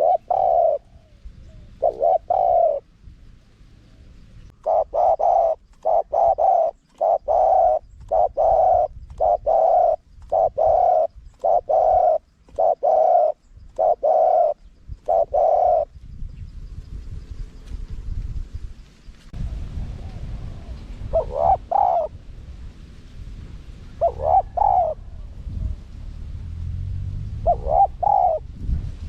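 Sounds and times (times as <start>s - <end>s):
dove cooing: 0.0s - 2.9s, 3.9s - 16.0s, 19.8s - 22.2s, 23.9s - 25.8s, 27.4s - 28.5s.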